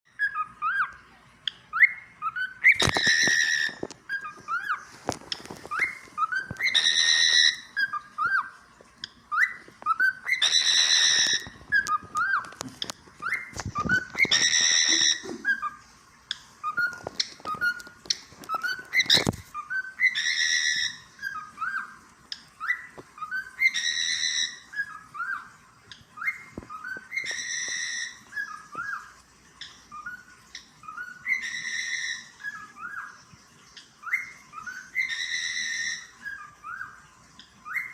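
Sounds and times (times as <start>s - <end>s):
cockatiel whistling: 1.7s - 4.8s, 5.7s - 8.6s, 9.3s - 12.5s, 13.2s - 15.8s, 26.2s - 29.1s, 37.6s - 37.9s.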